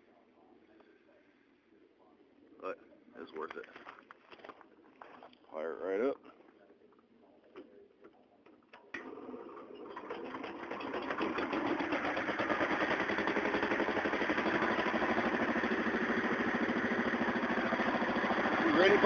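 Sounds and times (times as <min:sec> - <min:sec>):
garden tractor engine starting: 0:08.8 - 0:19.0.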